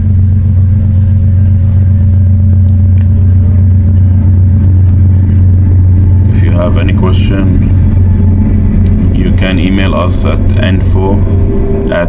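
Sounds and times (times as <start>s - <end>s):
loud low hum: 0.0s - 12.0s.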